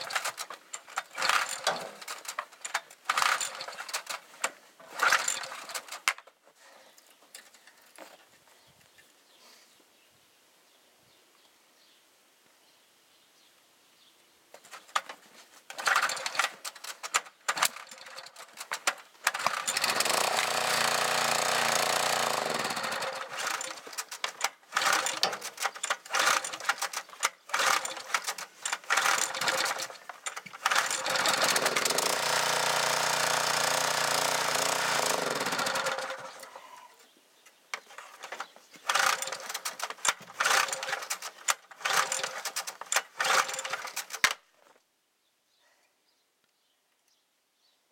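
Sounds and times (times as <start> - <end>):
small gas engine sputtering: 0.0 - 6.1, 15.7 - 36.8, 37.9 - 44.4.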